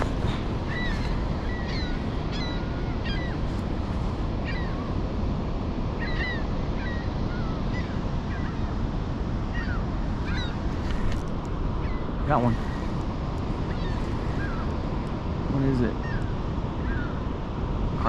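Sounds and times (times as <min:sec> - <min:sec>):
birds chirping: 0:00.0 - 0:04.9, 0:09.5 - 0:17.2.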